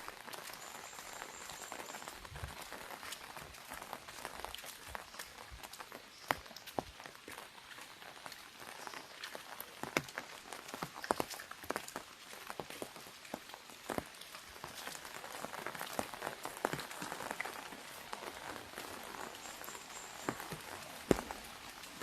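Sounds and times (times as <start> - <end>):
rain hissing on umbrella: 0.0 - 22.0
drops tapping on umbrella: 13.9 - 22.0.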